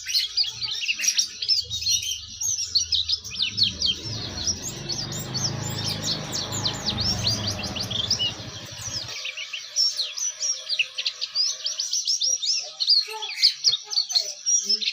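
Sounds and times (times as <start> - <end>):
songbird twittering song: 0.0 - 14.9
low rumble: 2.8 - 9.1.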